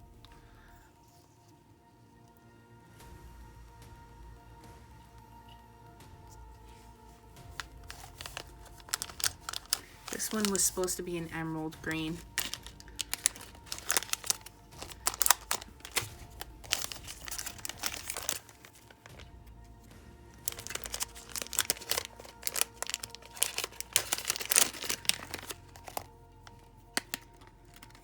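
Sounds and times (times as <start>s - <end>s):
soft background music: 0.0s - 28.0s
packets crinkling: 6.3s - 19.6s, 20.3s - 28.0s.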